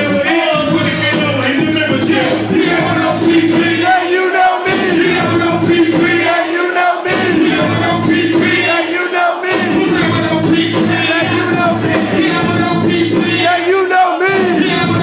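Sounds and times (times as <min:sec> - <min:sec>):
crowd shouting and singing along: 0:00.0 - 0:15.0
live hip-hop music with heavy bass: 0:00.0 - 0:15.0.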